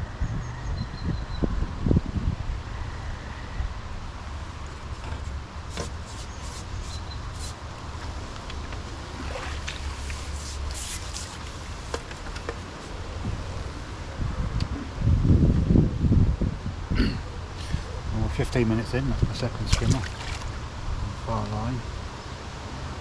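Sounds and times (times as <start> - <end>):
wind buffeting microphone: 0.0 - 2.8, 11.4 - 22.2
high rustling crackles: 4.7 - 7.7, 9.4 - 13.0.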